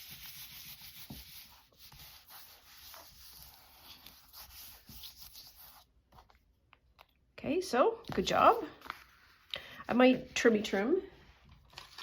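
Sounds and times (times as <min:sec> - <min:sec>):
paper rubbing and rustling: 0:00.0 - 0:06.3, 0:08.7 - 0:09.5, 0:10.2 - 0:12.0.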